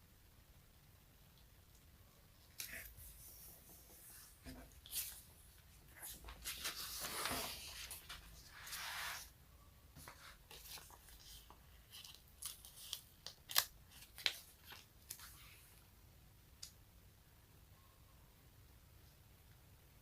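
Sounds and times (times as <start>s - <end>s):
sticky material peeling apart: 12.0s - 15.3s.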